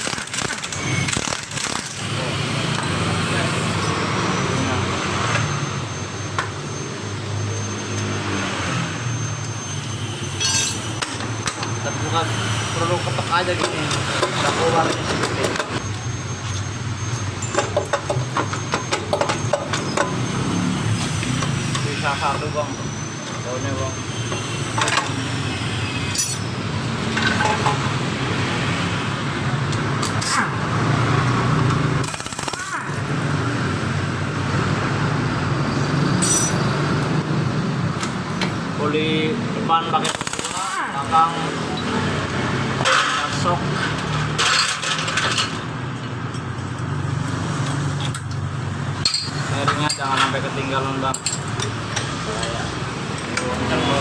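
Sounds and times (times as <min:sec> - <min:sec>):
tools clinking on metal: 0:10.4 - 0:11.8, 0:16.5 - 0:20.3, 0:26.0 - 0:27.9, 0:36.1 - 0:37.2, 0:42.8 - 0:53.7.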